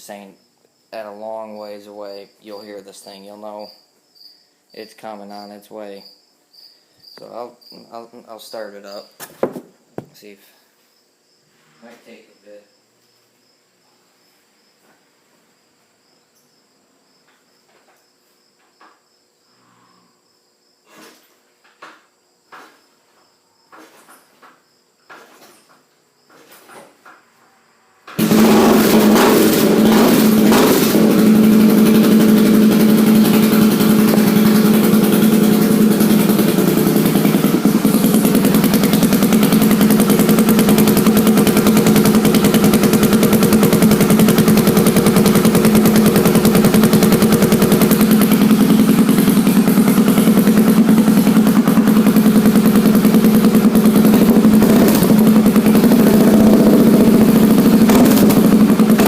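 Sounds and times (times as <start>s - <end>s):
loud motorcycle engine idling: 28.2s - 59.0s.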